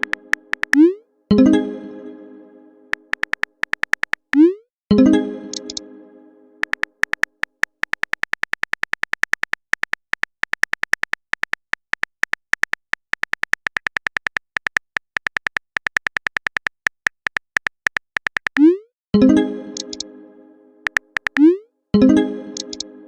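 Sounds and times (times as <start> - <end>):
phone keyboard typing ticks: 0.0 - 1.0, 2.9 - 4.6, 5.5 - 5.8, 6.6 - 18.8, 19.8 - 20.1, 20.8 - 21.6, 22.6 - 22.9.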